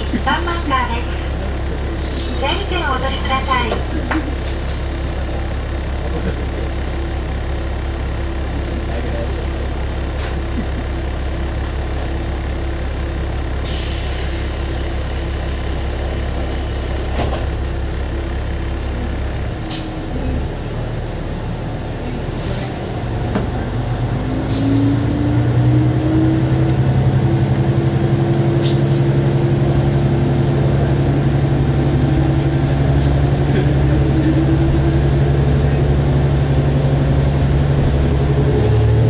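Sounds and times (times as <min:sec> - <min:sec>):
diesel engine idling: 0:00.0 - 0:39.0
engine revving under power: 0:31.6 - 0:39.0.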